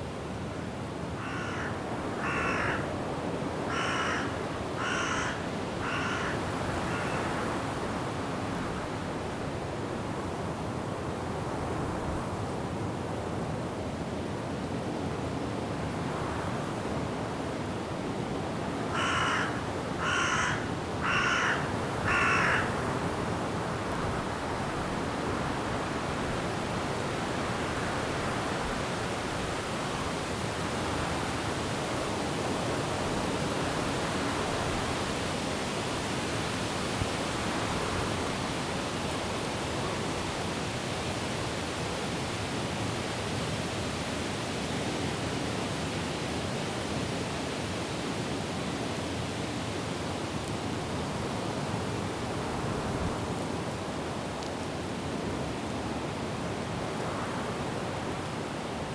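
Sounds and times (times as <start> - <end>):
wind and rain in trees: 0.0 - 58.9
crow-like bird cawing: 1.2 - 2.9, 3.7 - 7.4, 18.9 - 22.8.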